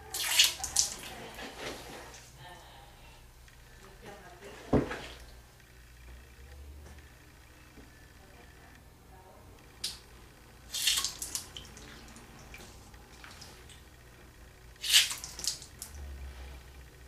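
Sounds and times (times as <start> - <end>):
water squirted into an ear: 0.1 - 1.0, 10.7 - 11.8, 14.8 - 15.9
water splashing and dripping: 10.7 - 13.8, 14.8 - 16.0.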